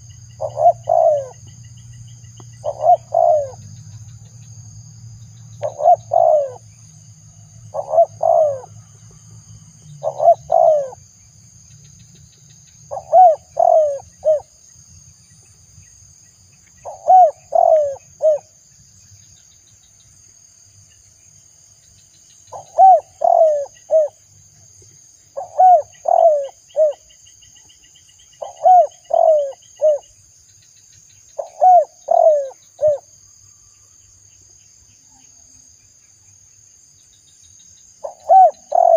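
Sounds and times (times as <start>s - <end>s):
dove cooing: 0.0s - 1.5s, 2.6s - 3.7s, 5.6s - 6.7s, 7.7s - 8.8s, 10.0s - 11.0s, 12.9s - 14.5s, 16.8s - 18.5s, 22.5s - 24.2s, 25.4s - 27.1s, 28.4s - 30.1s, 31.4s - 33.1s, 38.0s - 38.9s
high insect drone: 0.0s - 38.9s.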